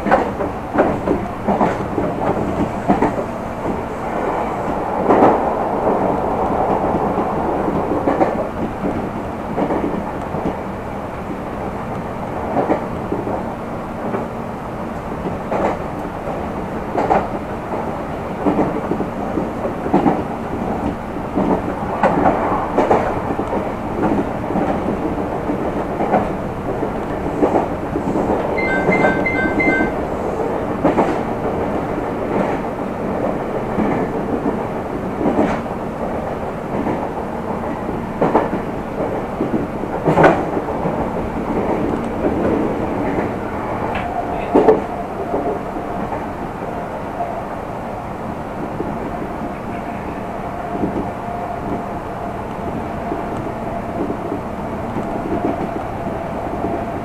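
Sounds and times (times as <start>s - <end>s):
train running noise: 0.0s - 57.0s
level-crossing bell ringing: 28.6s - 30.0s.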